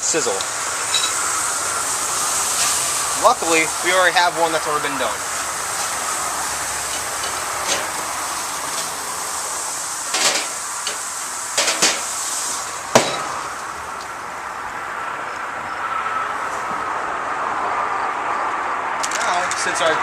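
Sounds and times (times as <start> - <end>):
steaks sizzling on a grill: 0.0 - 14.6.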